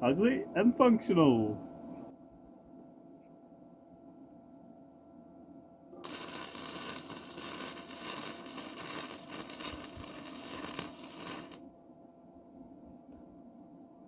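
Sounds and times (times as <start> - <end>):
welding arc crackling and sizzling: 6.0 - 11.6.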